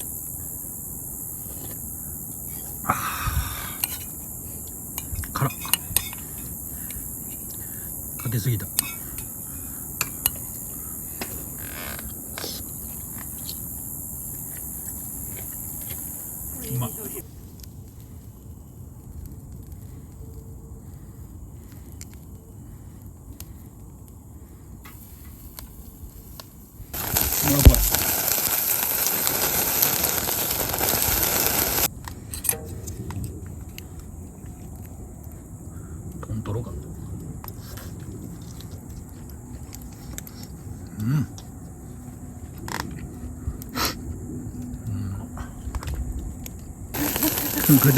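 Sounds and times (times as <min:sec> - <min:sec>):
meat sizzling on a grill: 0:00.0 - 0:17.2, 0:27.0 - 0:31.9, 0:47.0 - 0:47.9
insects chirring: 0:00.0 - 0:47.9.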